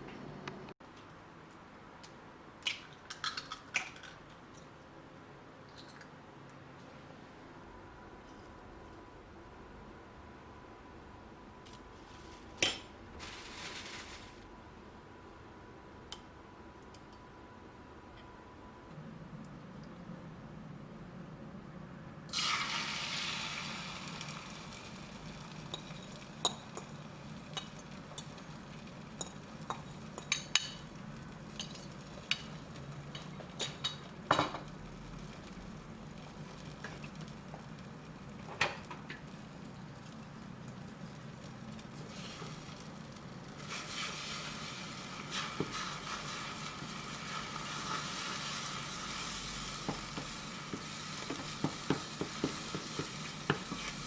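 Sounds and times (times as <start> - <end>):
food sizzling in a pan: 22.3 - 38.6, 41.8 - 54.0.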